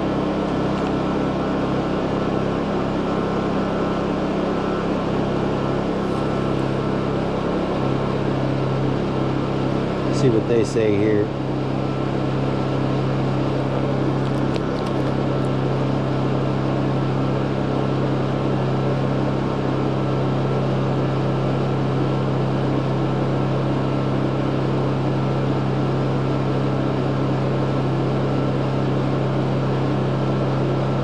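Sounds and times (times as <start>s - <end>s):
generators humming: 0.0s - 19.0s.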